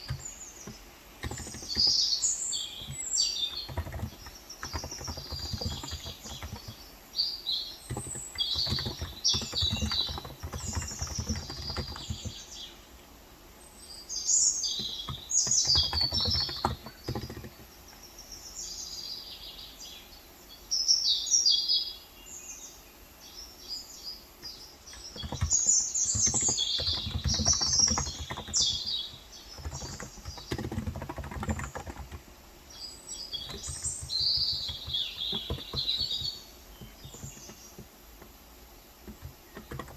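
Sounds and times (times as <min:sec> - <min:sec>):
typing on keyboard: 0:00.0 - 0:06.8, 0:07.8 - 0:12.7, 0:14.6 - 0:17.8, 0:24.4 - 0:32.4, 0:33.2 - 0:38.3, 0:39.0 - 0:39.9
birds chirping: 0:00.0 - 0:39.9.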